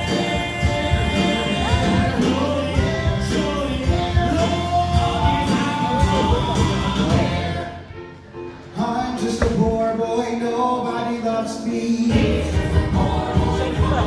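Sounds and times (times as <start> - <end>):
steady drum beat: 0.0 - 7.6, 12.1 - 14.0
voices singing: 0.0 - 8.1, 8.7 - 14.0.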